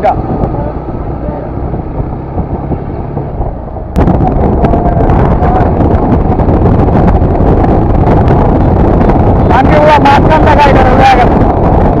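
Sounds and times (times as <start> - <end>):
motorcycle rushing noise: 0.0 - 12.0
wind buffeting microphone: 0.0 - 12.0.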